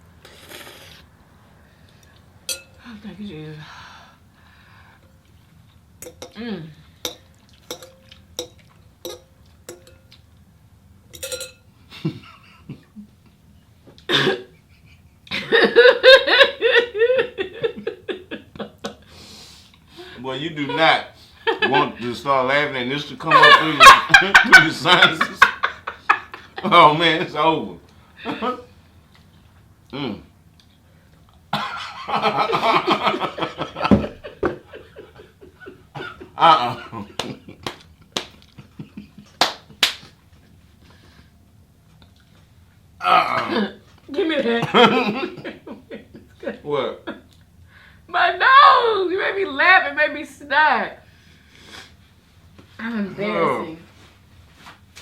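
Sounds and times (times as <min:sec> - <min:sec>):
utensil tapping a bowl: 0:06.0 - 0:06.4, 0:07.0 - 0:10.2, 0:11.1 - 0:11.6.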